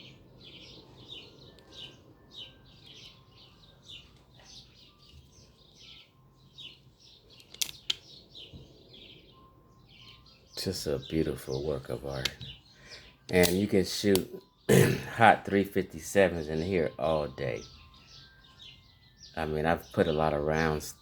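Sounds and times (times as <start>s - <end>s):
bird chirping: 0.0s - 21.0s
sharp clicks: 7.4s - 8.1s, 13.3s - 14.3s.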